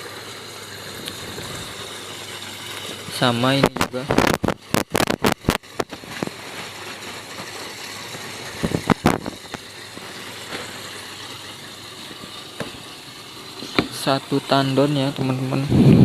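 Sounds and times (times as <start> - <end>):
wind rushing: 15.7 - 16.0.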